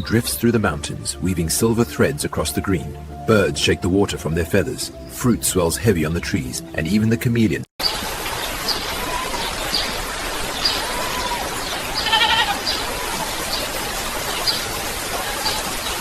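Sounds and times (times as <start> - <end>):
rain hiss: 7.8 - 16.0
animal bleat-like call: 12.0 - 12.7.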